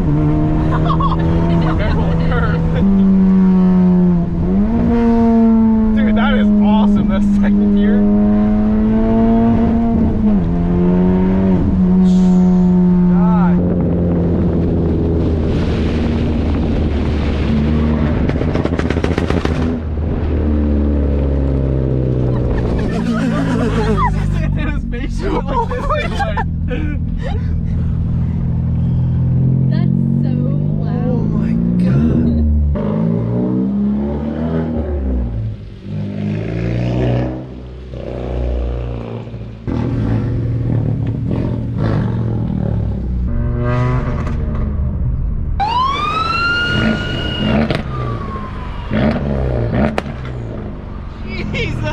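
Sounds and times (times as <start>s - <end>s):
car engine accelerating hard: 0.0s - 51.9s
exhaust pops and crackles: 13.5s - 20.4s, 46.8s - 48.1s, 48.9s - 50.7s.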